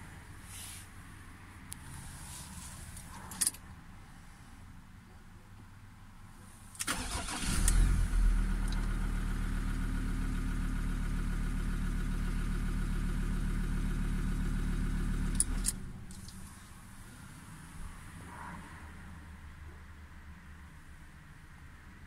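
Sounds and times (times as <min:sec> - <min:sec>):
engine switch-off clicks: 0:06.8 - 0:09.0.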